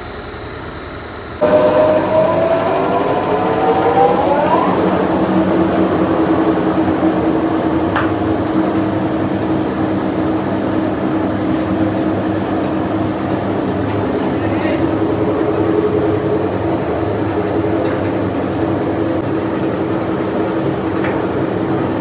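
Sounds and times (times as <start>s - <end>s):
factory machinery whining: 1.4s - 22.0s.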